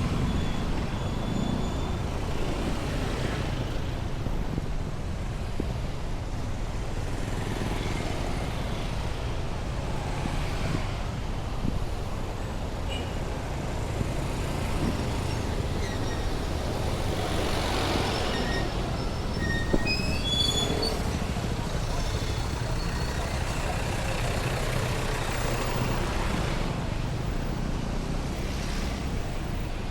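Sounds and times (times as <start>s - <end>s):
heavy road traffic rumble: 0.0s - 29.9s
brief high squeals: 18.1s - 21.1s.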